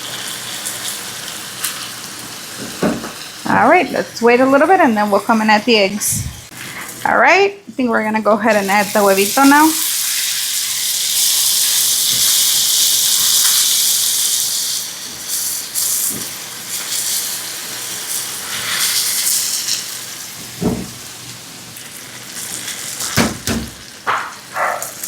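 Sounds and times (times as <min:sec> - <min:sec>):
vegetables sizzling in a pan: 0:00.0 - 0:07.4, 0:08.4 - 0:25.0
knocks: 0:23.2 - 0:24.8.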